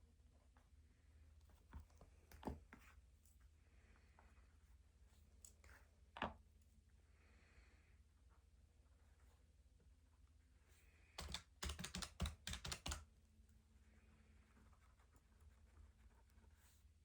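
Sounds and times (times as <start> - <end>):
key presses tapping: 11.2 - 13.0.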